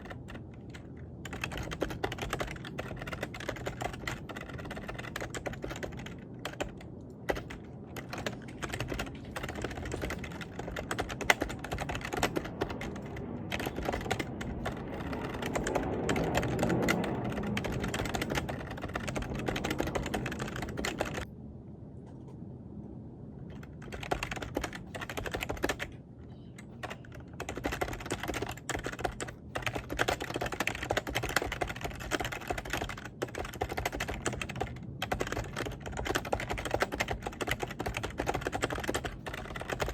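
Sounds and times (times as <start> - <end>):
typing on computer keyboard: 0.0 - 21.3, 23.5 - 26.0, 26.6 - 39.9
low rumble: 4.1 - 25.1.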